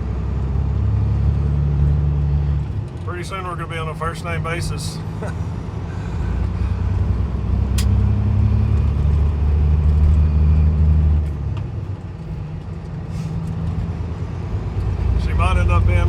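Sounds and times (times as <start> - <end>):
diesel truck engine under load: 0.0 - 16.0
sharp click: 7.8 - 8.0.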